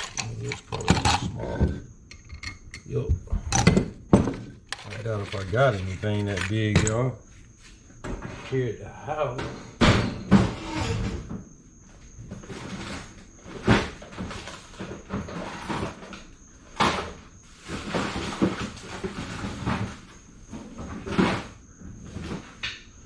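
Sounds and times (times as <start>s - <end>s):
metal parts clanking and scraping: 0.0s - 7.1s.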